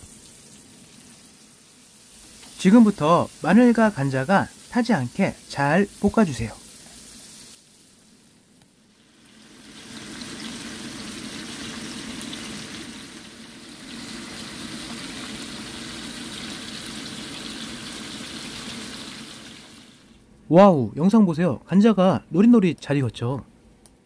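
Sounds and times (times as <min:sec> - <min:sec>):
food sizzling in frying pan: 0:00.0 - 0:20.2.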